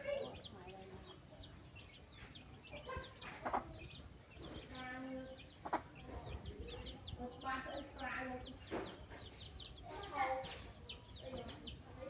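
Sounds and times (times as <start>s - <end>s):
chickens clucking: 0.0s - 12.0s
small birds chirping: 0.0s - 12.0s.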